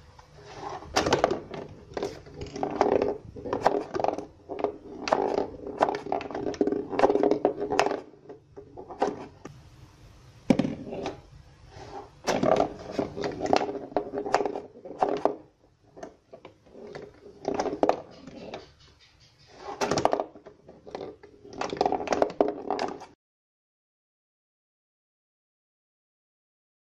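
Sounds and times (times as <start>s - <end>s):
ball clattering on cardboard board: 0.4s - 9.5s, 10.5s - 11.2s, 11.8s - 23.2s.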